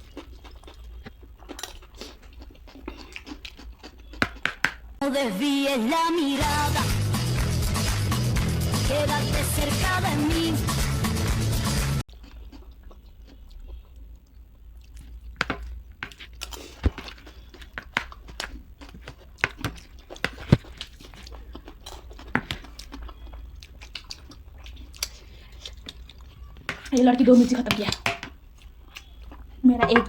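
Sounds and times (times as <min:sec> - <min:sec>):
chewing crunchy snack: 0:00.0 - 0:05.0, 0:12.1 - 0:27.1, 0:27.9 - 0:29.7.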